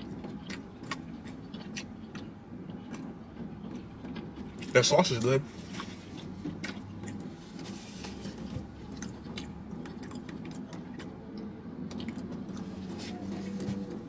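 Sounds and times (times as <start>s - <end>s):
person biting and chewing: 0.0s - 4.7s, 5.5s - 13.9s
steady low hum: 0.0s - 14.0s.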